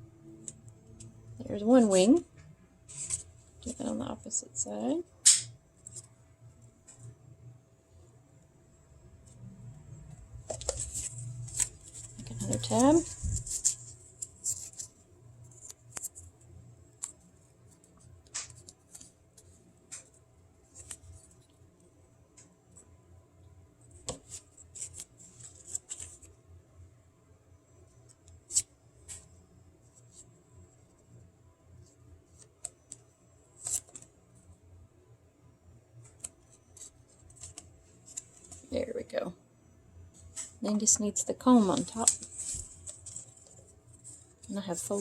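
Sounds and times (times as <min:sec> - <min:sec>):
paper handling: 0:10.5 - 0:16.2, 0:41.6 - 0:45.0.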